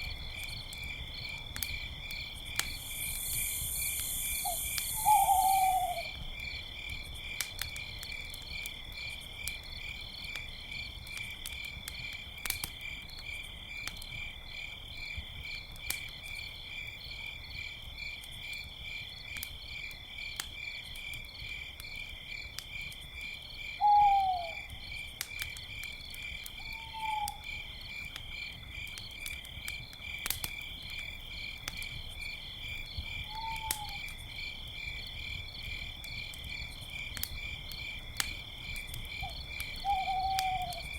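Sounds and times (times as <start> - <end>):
campfire crackling and popping: 0.0 - 23.7, 24.5 - 40.9
crickets chirping: 0.0 - 40.9
owl hooting: 2.9 - 6.2, 23.8 - 24.6, 26.8 - 27.5, 33.3 - 34.0, 39.8 - 40.9.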